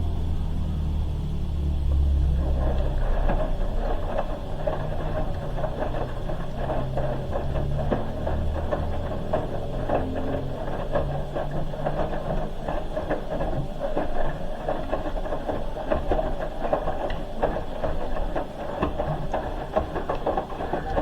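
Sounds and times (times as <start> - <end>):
low motor hum: 0.0 - 14.6
washing machine drum sloshing: 0.0 - 21.0.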